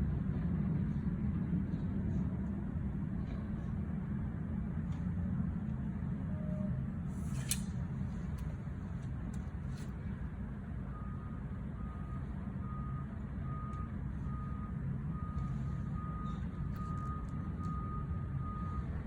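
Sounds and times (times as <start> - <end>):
reversing alarm beeping: 10.8 - 19.0.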